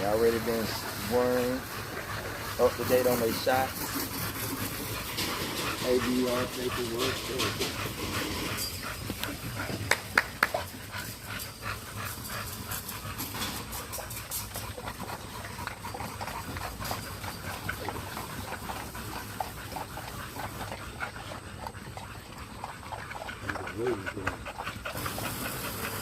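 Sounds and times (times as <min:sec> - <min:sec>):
puppies making small dog sounds: 0:00.0 - 0:26.0.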